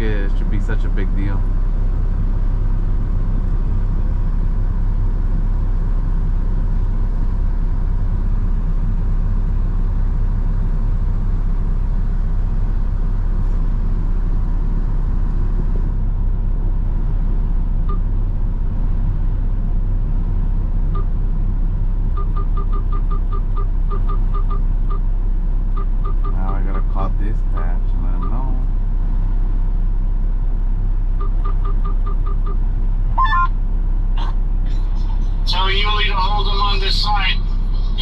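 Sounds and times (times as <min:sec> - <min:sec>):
truck diesel engine rumble: 0:00.0 - 0:38.0
short high beeps: 0:31.2 - 0:32.6, 0:33.2 - 0:33.5.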